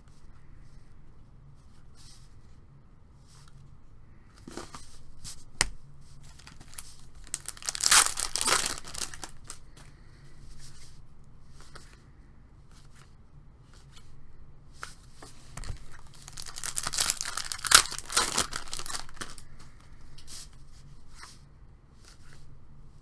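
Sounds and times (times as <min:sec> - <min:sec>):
wrapper tearing and crinkling: 0:06.3 - 0:09.6, 0:15.6 - 0:19.4.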